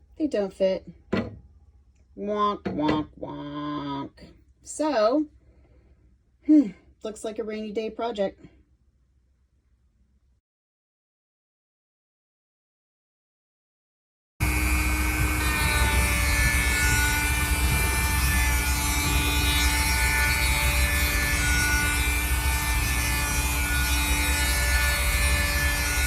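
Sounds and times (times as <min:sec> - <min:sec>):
power tool cutting wood: 0:14.4 - 0:26.0.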